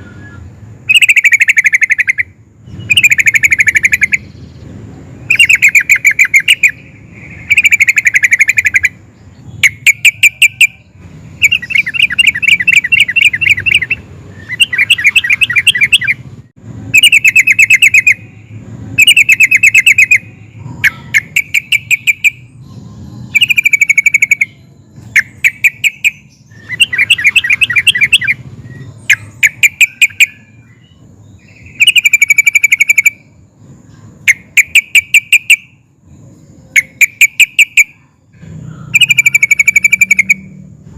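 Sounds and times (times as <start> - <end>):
bird singing bubbling phrases: 0.0 - 16.3, 16.9 - 35.6, 36.5 - 40.6.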